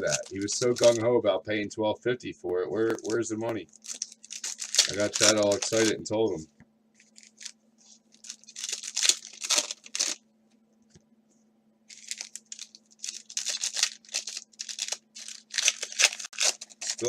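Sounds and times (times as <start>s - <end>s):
wrappers tearing and crinkling: 0.0s - 1.0s, 2.8s - 6.0s, 7.0s - 10.2s, 11.9s - 17.0s
faint steady hum: 0.0s - 17.0s.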